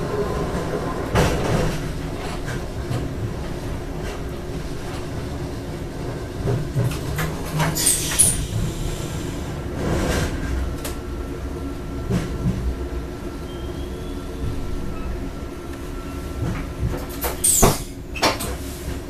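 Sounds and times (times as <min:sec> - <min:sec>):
train rumble: 0:00.0 - 0:19.0
high squeal of wheels or brakes: 0:07.8 - 0:08.5, 0:13.4 - 0:15.2, 0:17.3 - 0:18.3.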